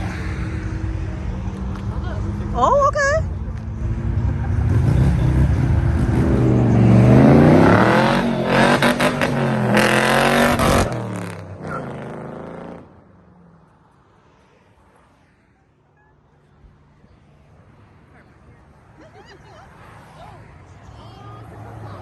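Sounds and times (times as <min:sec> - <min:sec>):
car engine revving: 0:00.0 - 0:13.1.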